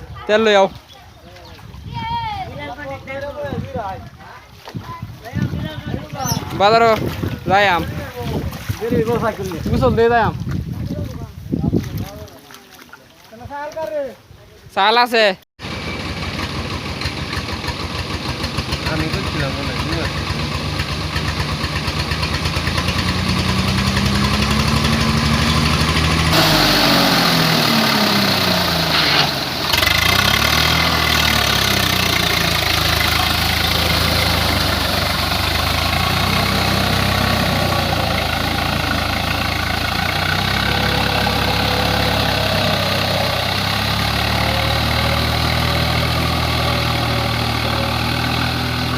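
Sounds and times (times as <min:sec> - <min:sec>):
tractor diesel engine running: 0:15.6 - 0:48.9.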